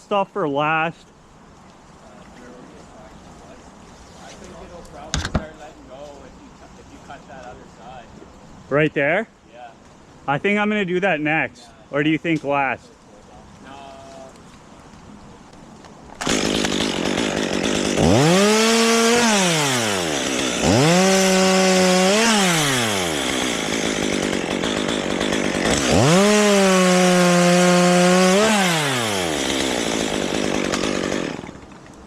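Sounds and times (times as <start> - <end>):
chainsaw revving and cutting wood: 16.2 - 31.8.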